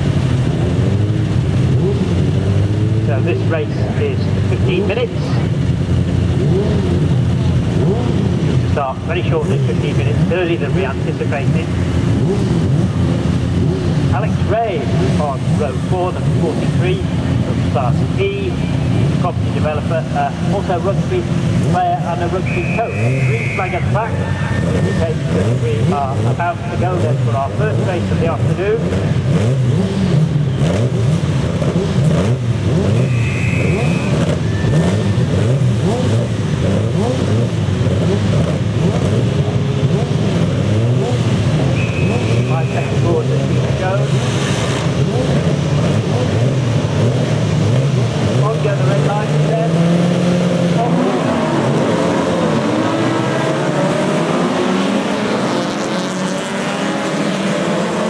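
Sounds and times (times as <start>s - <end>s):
racing car engines revving: 0.0s - 58.0s.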